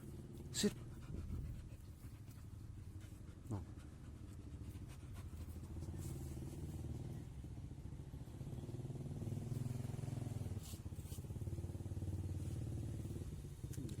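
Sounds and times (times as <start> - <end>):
small engine idling: 5.4 - 14.0.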